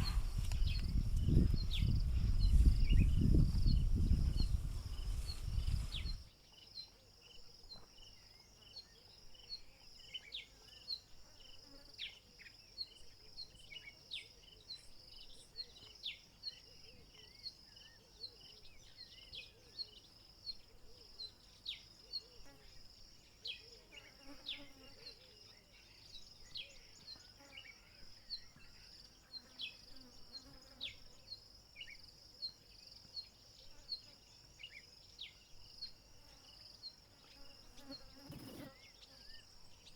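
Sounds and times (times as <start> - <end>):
insects chirring: 0.0 - 6.3.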